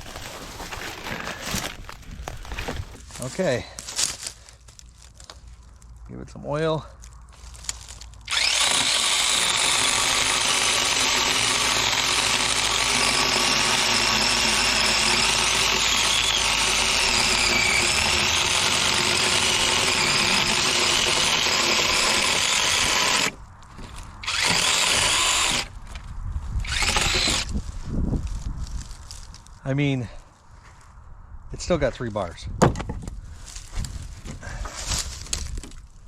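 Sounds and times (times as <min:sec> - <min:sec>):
electric chainsaw cutting wood: 0:08.3 - 0:23.4, 0:24.2 - 0:25.7, 0:26.6 - 0:27.5.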